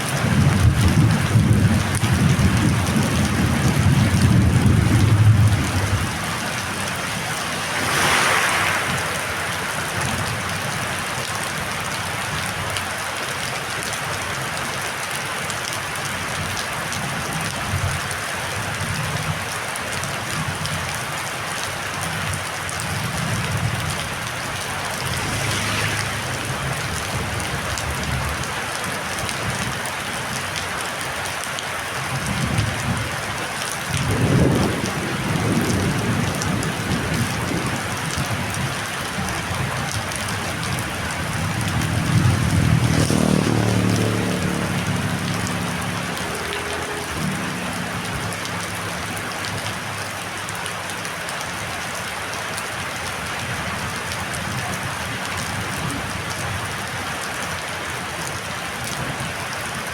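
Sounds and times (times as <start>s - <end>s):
heavy rain pouring: 0.0s - 59.9s
low thunder rumbles: 0.2s - 6.9s, 33.9s - 46.1s.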